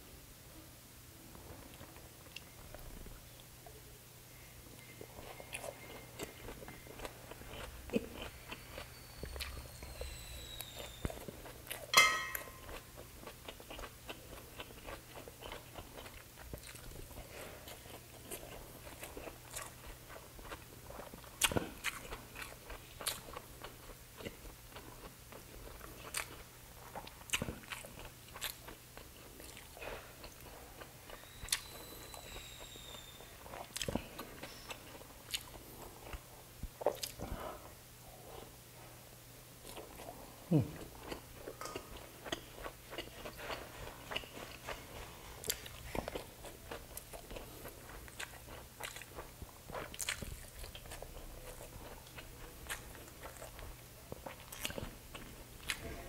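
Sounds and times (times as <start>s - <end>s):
man chewing and biting food: 4.8s - 37.7s, 39.6s - 56.0s.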